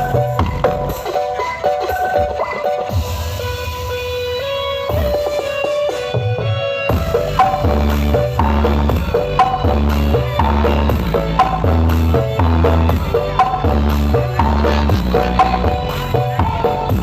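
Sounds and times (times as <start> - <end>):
heavy repeating bass line: 0.0 - 1.0, 6.3 - 17.0
clicking percussion beat: 6.9 - 17.0.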